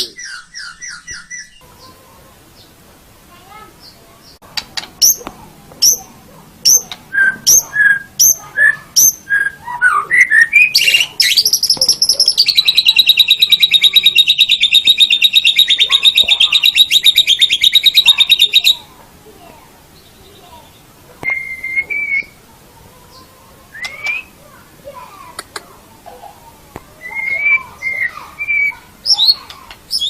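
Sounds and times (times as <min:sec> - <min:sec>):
bird whistling notes: 0:06.7 - 0:18.8, 0:21.2 - 0:22.4, 0:23.7 - 0:24.4, 0:27.0 - 0:30.0.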